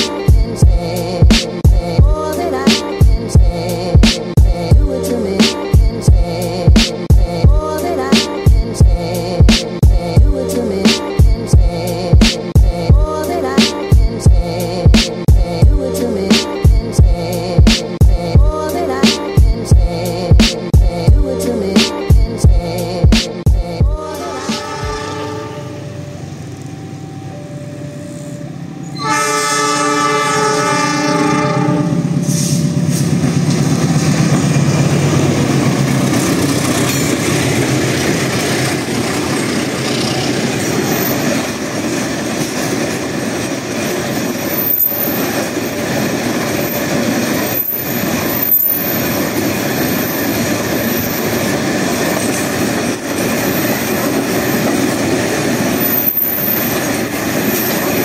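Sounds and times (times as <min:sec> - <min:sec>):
locomotive engine: 0:00.0 - 0:58.0
locomotive air horn: 0:24.0 - 0:26.2, 0:29.0 - 0:32.6
train wheels clattering on rails: 0:32.1 - 0:58.0.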